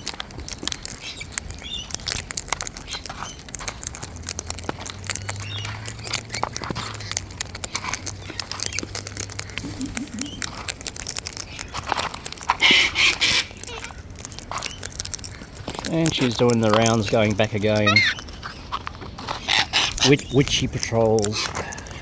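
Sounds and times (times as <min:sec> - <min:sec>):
beaks and feet clicking in seed: 0:00.0 - 0:22.0
bird chirps and calls: 0:05.0 - 0:08.9, 0:09.6 - 0:10.6, 0:12.6 - 0:15.0, 0:15.9 - 0:21.9.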